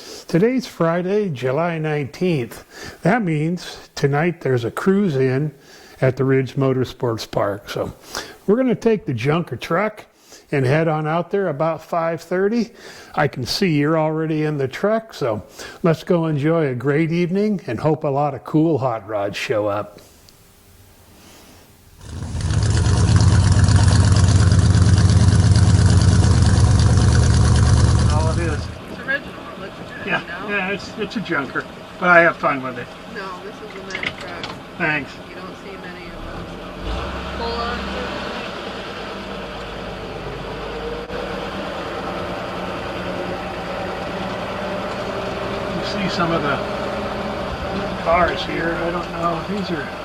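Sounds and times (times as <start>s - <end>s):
pickup truck engine running: 22.0s - 33.5s
truck engine running: 22.0s - 50.0s.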